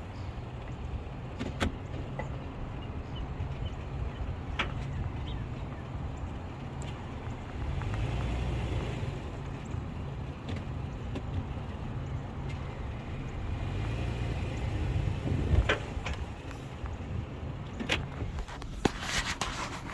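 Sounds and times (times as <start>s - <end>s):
car rolling with low rumble: 0.0s - 19.9s
car tyre popping over curb: 17.7s - 19.9s.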